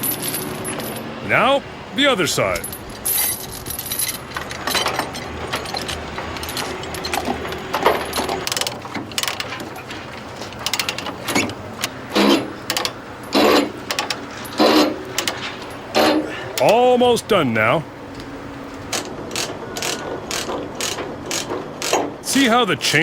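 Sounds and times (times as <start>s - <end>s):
chains rattling and clinking: 0.0s - 1.4s, 2.4s - 11.5s.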